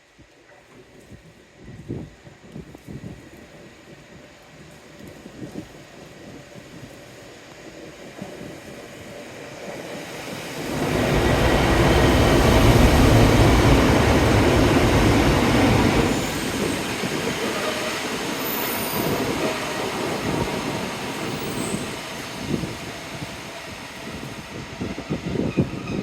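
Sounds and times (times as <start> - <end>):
train passing: 7.1 - 26.0.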